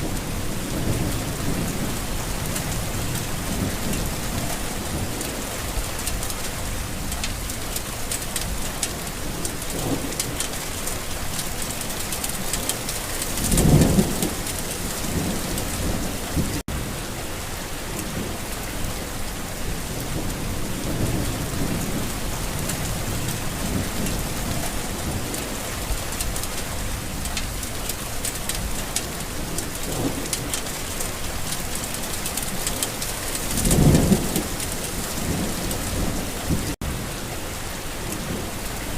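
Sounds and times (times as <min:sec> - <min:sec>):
thunder rumbling: 0:00.0 - 0:05.8, 0:12.3 - 0:17.0, 0:19.5 - 0:37.1
steady rain falling: 0:00.0 - 0:38.9.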